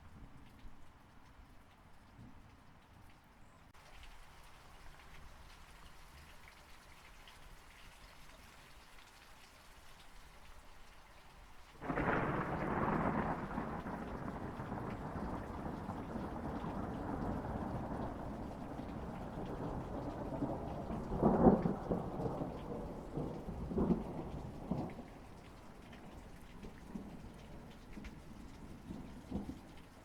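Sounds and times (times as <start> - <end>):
rain patter: 0.0 - 30.0
thunder clap and rumble: 11.8 - 29.8.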